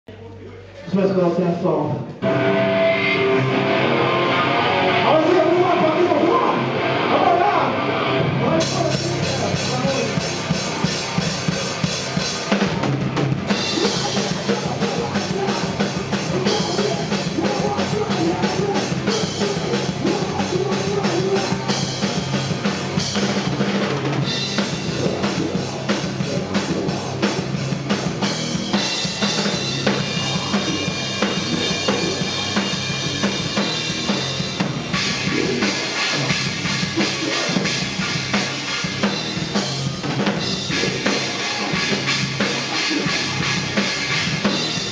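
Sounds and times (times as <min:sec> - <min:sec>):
heavy rock band playing: 0:02.0 - 0:44.9
rapid bass drum and snare hits: 0:08.5 - 0:44.9.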